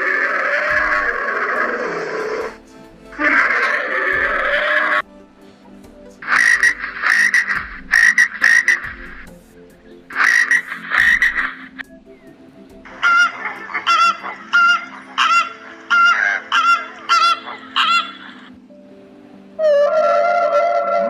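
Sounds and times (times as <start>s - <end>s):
noisy animal bursts: 0.0s - 2.6s, 3.2s - 5.0s, 6.3s - 9.0s
pitched animal calls: 0.0s - 5.0s, 6.2s - 9.2s, 10.1s - 11.8s, 12.9s - 18.5s, 19.6s - 21.0s.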